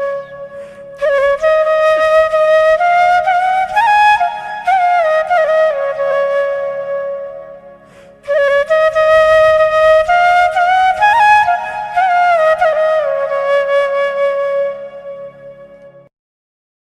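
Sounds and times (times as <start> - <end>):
slow flute-like woodwind melody: 0.0 - 16.1.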